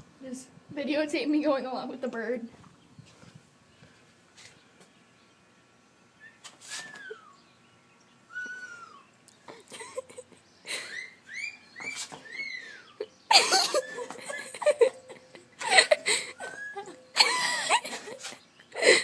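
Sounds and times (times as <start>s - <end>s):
pet birds chirping: 6.2s - 19.0s
person imitating bird calls: 8.3s - 14.6s
person laughing: 9.5s - 11.0s, 13.0s - 19.0s
bird harsh screeches: 10.8s - 13.0s.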